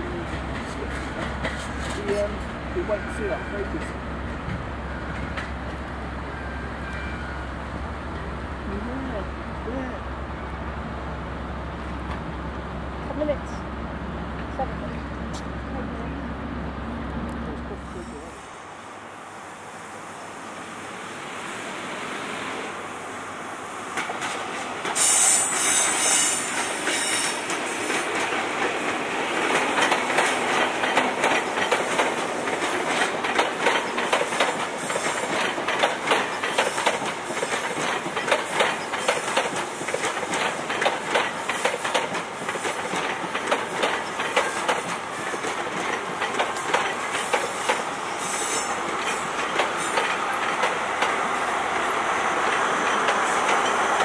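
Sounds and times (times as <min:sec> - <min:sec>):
train passing: 0:00.0 - 0:54.0
wheels clicking over rail joints: 0:26.6 - 0:47.9, 0:48.8 - 0:54.0.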